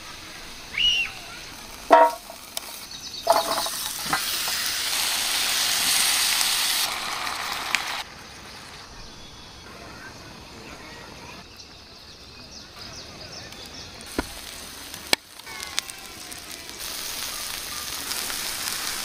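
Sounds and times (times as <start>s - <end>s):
food sizzling in a pan: 0.0s - 8.1s, 13.7s - 19.0s.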